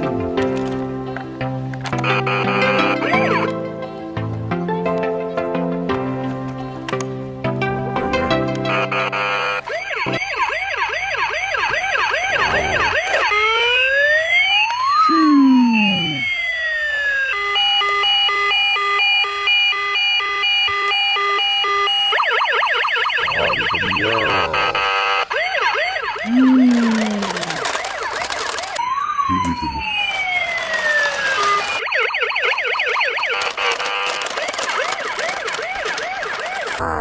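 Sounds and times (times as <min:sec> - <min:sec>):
toy warbling siren: 0:02.2 - 0:03.5, 0:08.9 - 0:37.0
stepped beeping pattern: 0:15.1 - 0:16.4, 0:23.2 - 0:24.9.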